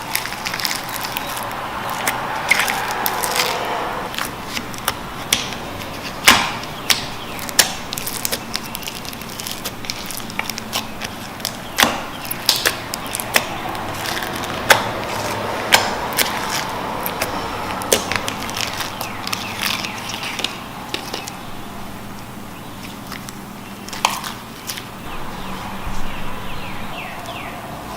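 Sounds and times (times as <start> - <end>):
slime squishing and popping: 6.2 - 14.9.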